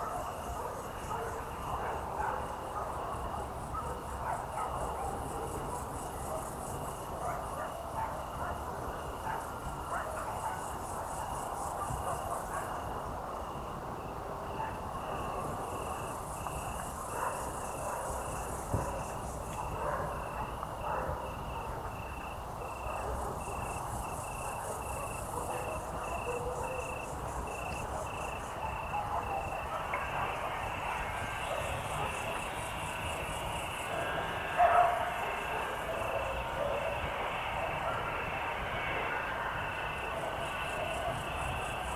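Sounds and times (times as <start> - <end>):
crickets chirping: 0.0 - 41.9
faint distant sounds: 0.0 - 41.9.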